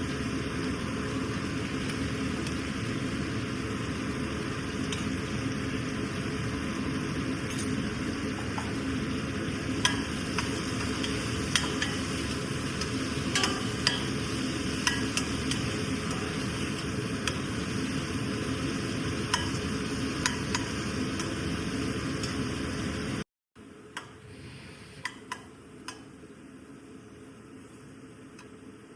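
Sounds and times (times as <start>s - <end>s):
food sizzling in a pan: 0.0s - 23.2s.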